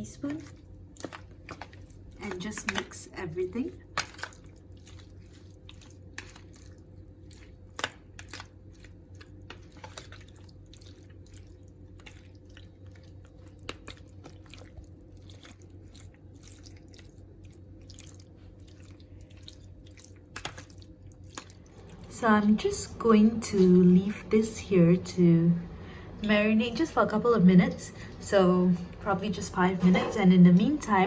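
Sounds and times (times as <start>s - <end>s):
wet squishing of chicken in flour: 0.0s - 22.1s
steady low hum: 0.0s - 31.0s.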